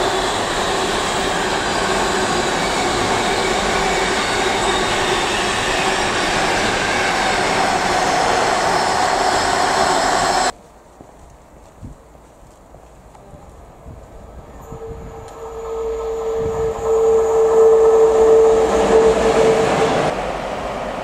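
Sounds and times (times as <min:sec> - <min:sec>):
train wheels rattling on track: 0:00.0 - 0:10.6.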